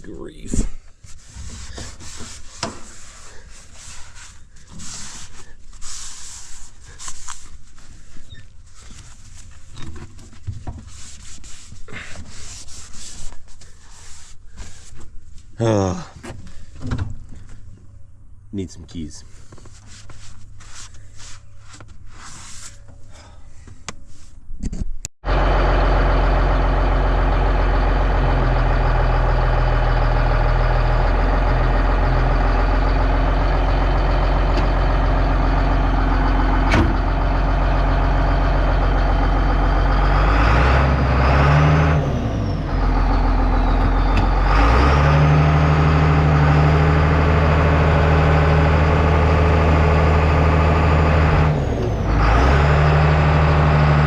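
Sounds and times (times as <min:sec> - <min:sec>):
bulldozer diesel engine running: 0:25.2 - 0:54.0.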